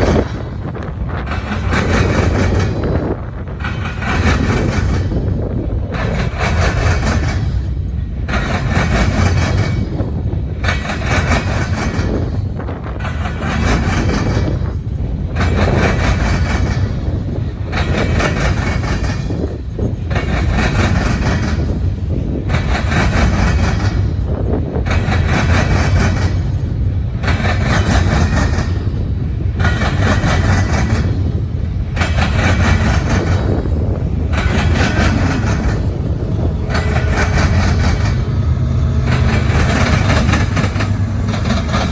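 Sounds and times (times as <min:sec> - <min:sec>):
freight train rumbling past: 0:00.0 - 0:41.9
rhythmic wheel noise: 0:34.3 - 0:41.9.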